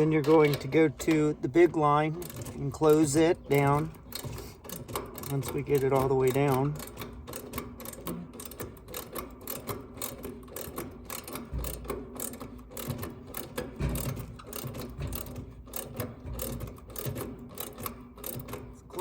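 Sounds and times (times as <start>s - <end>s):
ratchet wrench clicking: 2.2s - 19.0s
dull knocks: 12.9s - 17.4s.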